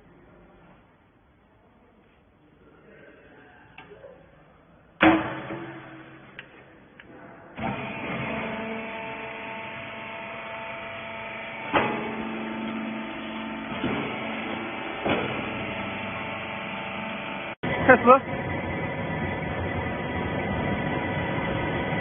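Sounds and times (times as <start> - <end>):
loud bang: 5.0 - 6.4
machine knocks: 5.0 - 6.5, 11.6 - 16.0
baler machine humming: 5.0 - 22.0.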